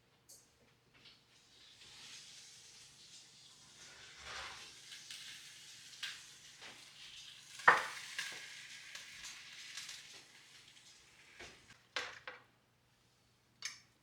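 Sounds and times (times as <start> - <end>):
food sizzling in a pan: 1.2 - 11.8.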